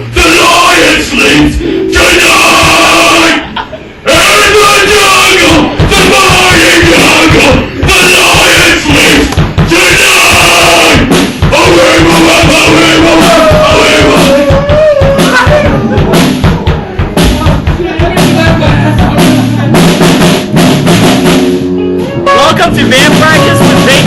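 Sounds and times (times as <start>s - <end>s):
band playing loud: 0.0s - 24.0s
bass drum hits: 0.4s - 3.4s, 4.1s - 24.0s
snare drum hits: 4.8s - 21.6s.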